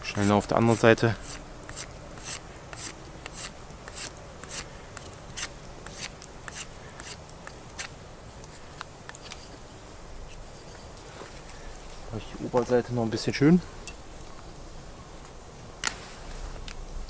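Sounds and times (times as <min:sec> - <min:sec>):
knife scraping bark off stick: 0:00.0 - 0:09.7.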